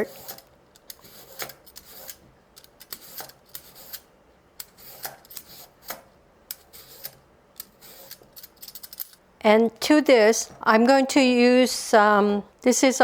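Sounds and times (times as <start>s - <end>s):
kitchen gadget cutting carrot: 0.0s - 8.8s.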